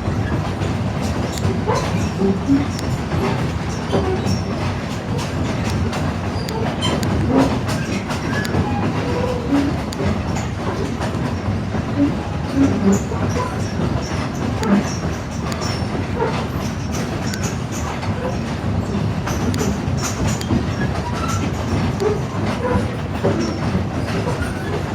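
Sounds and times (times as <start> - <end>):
train wheels rumbling on rail: 0.0 - 24.9
clicks and rattles: 0.2 - 11.3.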